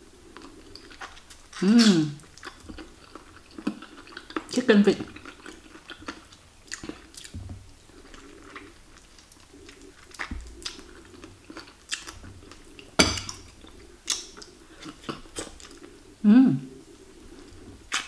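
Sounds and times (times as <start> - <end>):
person chewing and sucking: 0.0 - 18.0
wet mouth smacks and clicks: 14.1 - 14.5.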